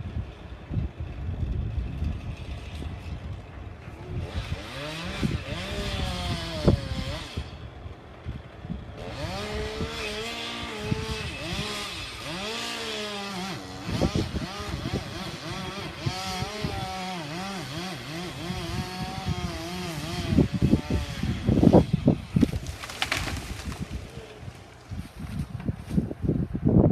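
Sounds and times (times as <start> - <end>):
chainsaw cutting: 4.1 - 7.6, 8.9 - 25.3.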